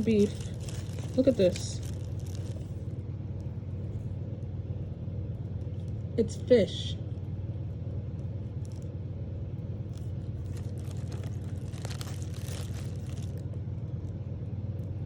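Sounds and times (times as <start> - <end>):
rustling and crackling of handling: 0.0 - 4.6, 8.1 - 14.9
car engine idling: 0.0 - 6.0, 7.3 - 15.0.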